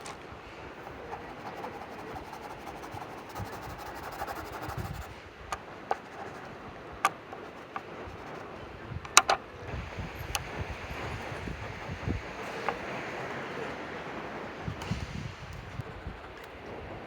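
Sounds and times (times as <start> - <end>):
drawing tool scratching paper: 0.8 - 5.1, 5.9 - 6.6, 7.2 - 8.4, 10.7 - 13.4.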